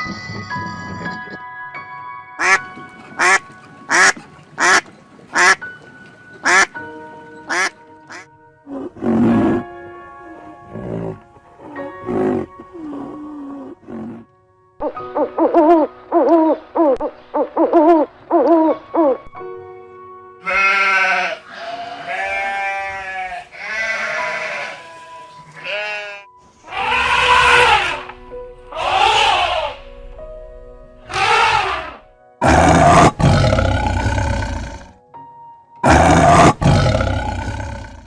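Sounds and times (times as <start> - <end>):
background music: 0.0 - 38.0
animal calls: 26.6 - 29.9, 31.0 - 34.9.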